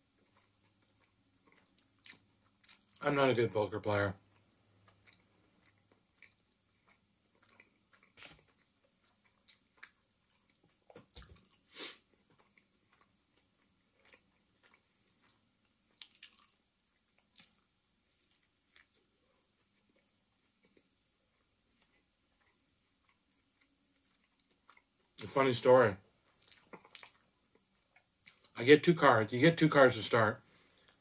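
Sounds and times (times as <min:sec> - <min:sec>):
faint chewing and biting: 0:00.0 - 0:03.1, 0:03.8 - 0:25.4, 0:26.2 - 0:28.6, 0:30.5 - 0:31.0
soft mouth clicks and smacks: 0:00.2 - 0:03.0, 0:04.4 - 0:11.6, 0:14.0 - 0:16.6, 0:17.2 - 0:19.0, 0:26.3 - 0:28.6.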